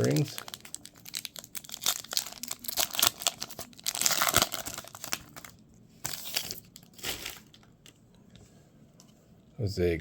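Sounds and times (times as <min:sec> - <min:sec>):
plastic wrapper tearing and crinkling: 0:00.0 - 0:07.9.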